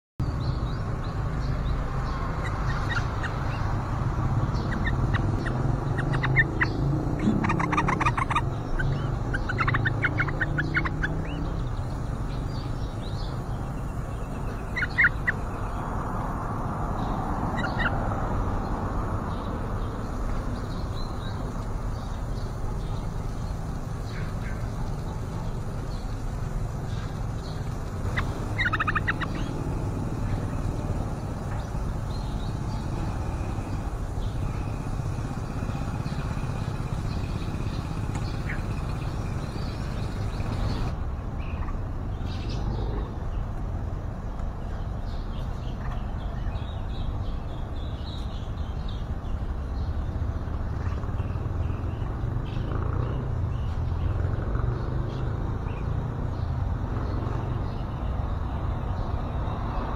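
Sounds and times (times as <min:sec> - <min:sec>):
high bird chirps: 0:00.2 - 0:16.1, 0:17.0 - 0:18.0, 0:19.3 - 0:42.7.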